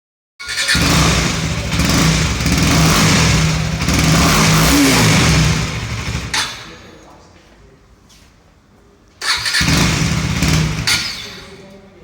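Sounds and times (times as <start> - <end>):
motorcycle engine revving: 0.4 - 6.9, 9.2 - 11.8.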